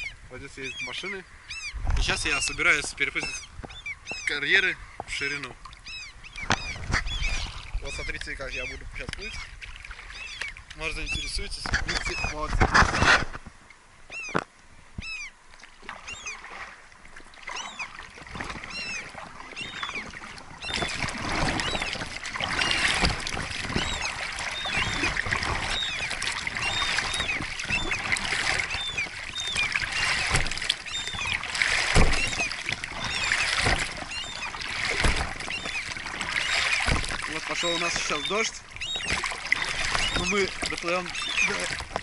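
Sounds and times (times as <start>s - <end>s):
small bird chirping: 0.0s - 2.5s, 3.2s - 4.4s, 5.2s - 9.5s, 10.1s - 11.3s, 15.0s - 15.3s, 16.0s - 16.4s, 17.5s - 18.0s, 18.7s - 22.0s, 32.1s - 34.6s, 35.5s - 36.8s, 37.5s - 39.2s
rain falling on water: 17.0s - 42.0s
dull knocks from boat: 20.6s - 42.0s.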